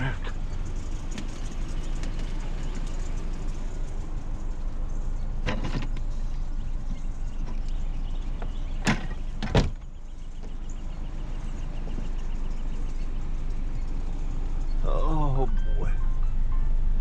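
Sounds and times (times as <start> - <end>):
car engine rumbling: 0.0 - 17.0
car door slamming: 8.8 - 9.9.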